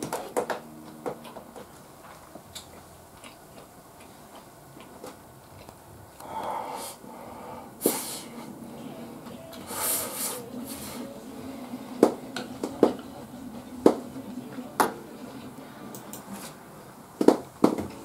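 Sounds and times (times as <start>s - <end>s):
soft chewing: 1.6s - 6.4s.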